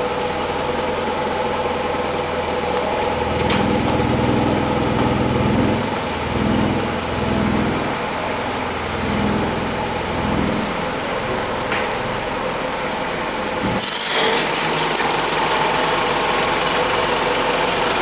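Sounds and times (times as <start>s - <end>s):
engine idling: 0.0s - 13.6s
deeper pulsing: 3.1s - 11.0s.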